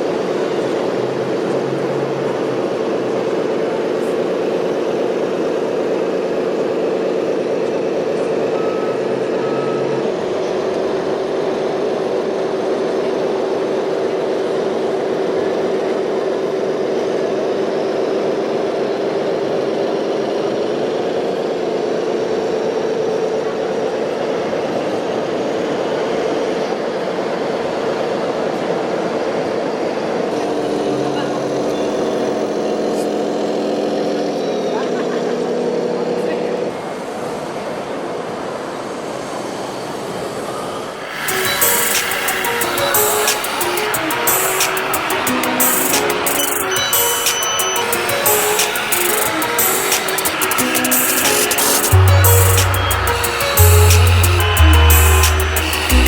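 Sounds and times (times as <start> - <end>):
toy electric motor whining: 41.0 - 56.0.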